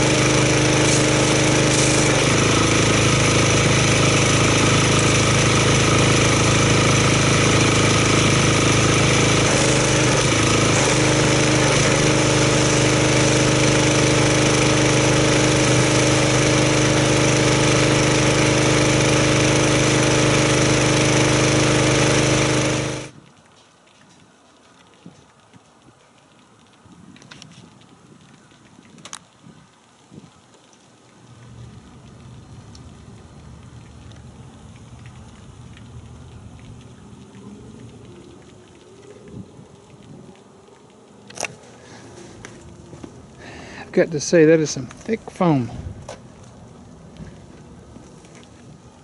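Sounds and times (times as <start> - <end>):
pressure washer engine running: 0.0 - 23.2, 41.3 - 49.0.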